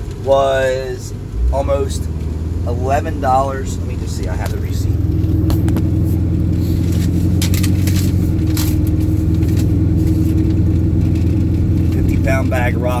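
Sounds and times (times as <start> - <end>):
vehicle engine idling: 0.0 - 13.0
paper receipt rustling: 5.2 - 11.2.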